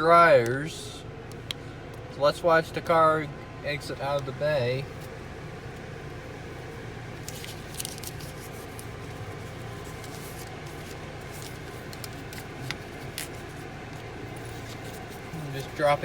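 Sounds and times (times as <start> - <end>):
objects being handled: 7.2 - 15.6.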